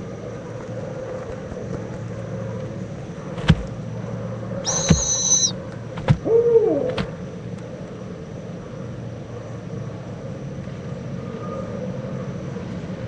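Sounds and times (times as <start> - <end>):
steady low hum: 0.0 - 13.0
sharp knocks: 3.4 - 3.8, 6.0 - 6.3
owl hoot sliding down: 4.6 - 7.1
high thin squeal: 4.7 - 5.6.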